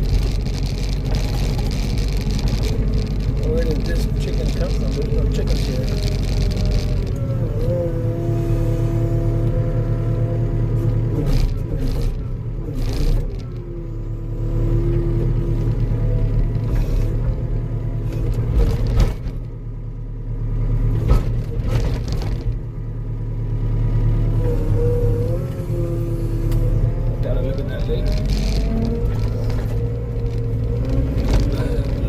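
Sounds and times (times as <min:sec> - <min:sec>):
whining diesel engine: 0:00.0 - 0:32.0.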